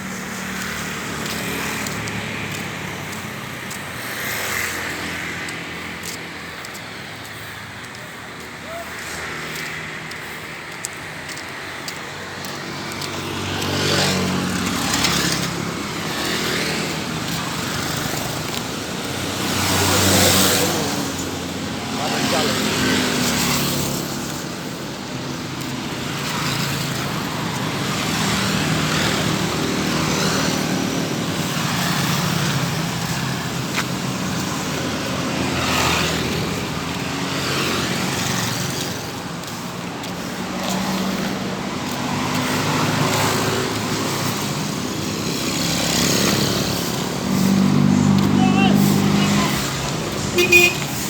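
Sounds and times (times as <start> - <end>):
road traffic: 0.0 - 51.0
broom sweeping swishes: 45.8 - 51.0.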